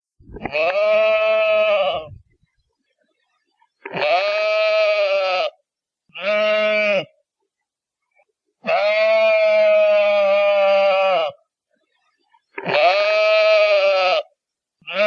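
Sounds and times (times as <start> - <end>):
sheep bleating: 0.4 - 2.2, 3.8 - 7.2, 8.6 - 11.4, 12.6 - 15.0.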